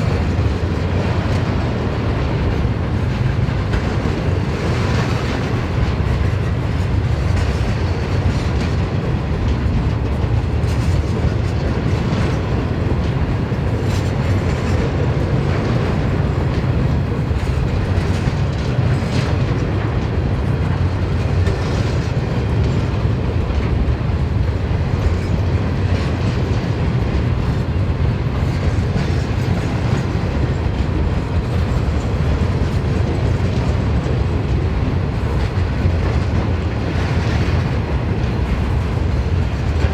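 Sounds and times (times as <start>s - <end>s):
wheels clattering over track: 0.0s - 19.7s
train wagons rumbling past: 0.0s - 39.9s.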